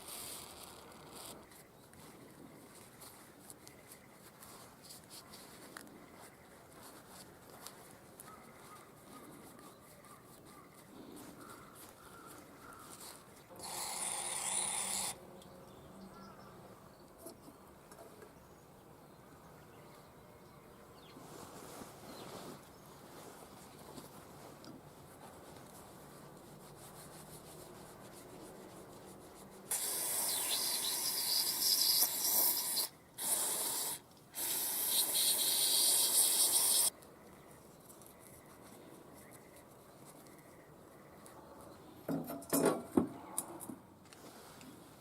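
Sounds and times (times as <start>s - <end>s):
handling rustle: 0.0s - 13.5s, 21.1s - 29.7s, 36.9s - 41.8s
pressurised spray hissing: 29.7s - 36.9s.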